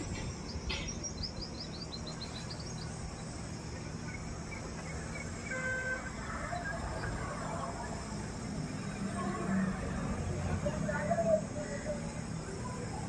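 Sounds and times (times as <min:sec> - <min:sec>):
bird chirping: 0:00.0 - 0:05.6
low background noise: 0:00.0 - 0:13.0.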